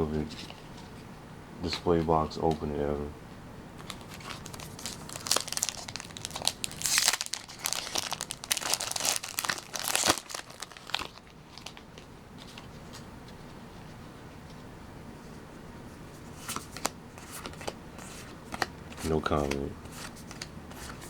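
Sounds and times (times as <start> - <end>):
faint room hiss: 0.0 - 21.0
foil wrapper crinkling and tearing: 3.8 - 12.6.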